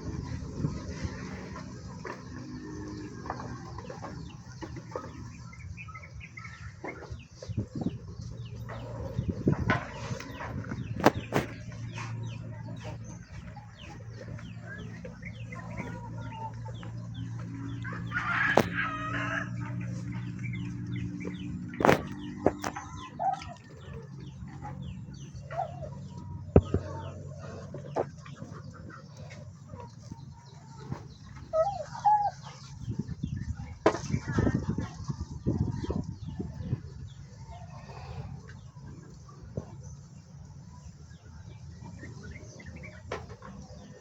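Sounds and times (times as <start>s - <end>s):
drawn-out poultry call: 0.0s - 36.3s
poultry clucking and peeping: 0.0s - 44.0s.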